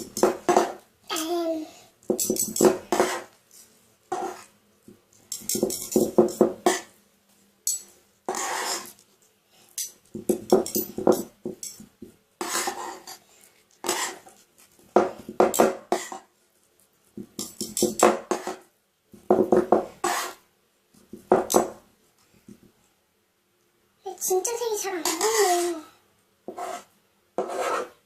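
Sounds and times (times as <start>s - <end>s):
metal spatulas chopping and scraping: 0.0s - 0.8s, 2.1s - 3.4s, 4.1s - 4.5s, 5.3s - 6.9s, 7.6s - 9.0s, 9.8s - 13.2s, 13.8s - 14.3s, 15.0s - 16.3s, 17.4s - 18.6s, 19.4s - 20.4s, 25.0s - 25.8s, 26.5s - 28.0s.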